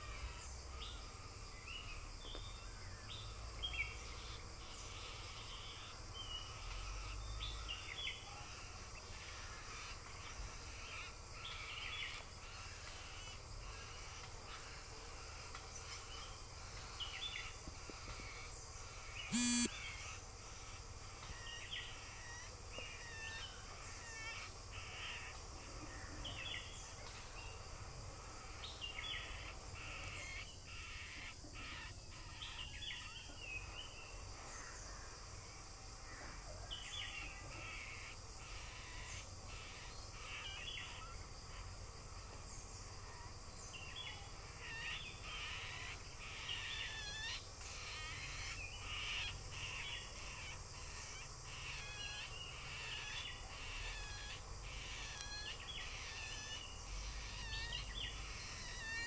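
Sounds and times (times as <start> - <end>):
birds calling harshly: 3.2 - 26.9, 36.2 - 59.0.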